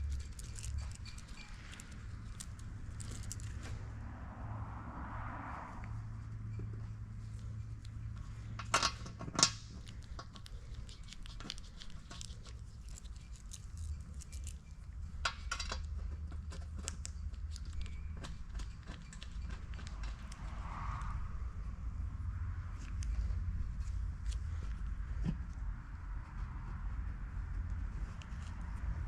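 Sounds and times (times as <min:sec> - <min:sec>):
metal parts clinking: 0:00.0 - 0:03.6, 0:11.0 - 0:15.9.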